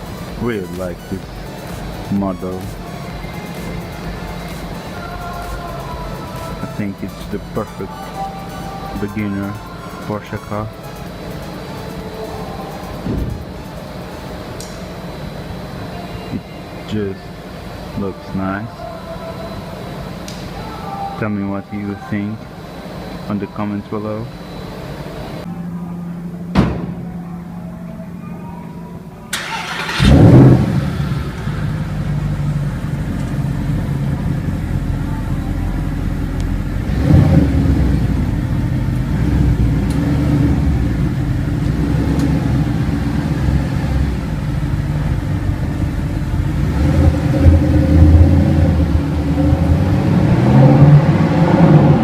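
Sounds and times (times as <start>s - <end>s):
sports car engine revving: 29.4s - 35.0s, 35.8s - 52.0s.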